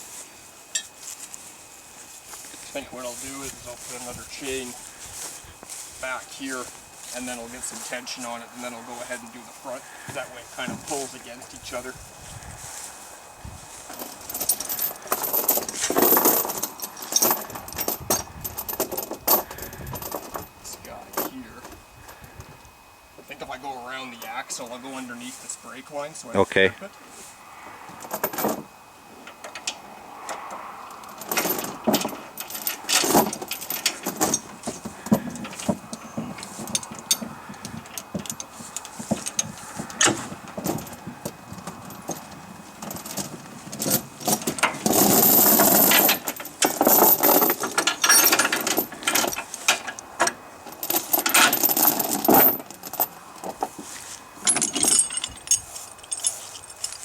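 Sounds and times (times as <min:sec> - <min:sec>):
steel chain clinking and rattling: 0:13.6 - 0:22.2, 0:28.0 - 0:28.6, 0:30.9 - 0:53.8, 0:54.4 - 0:57.0.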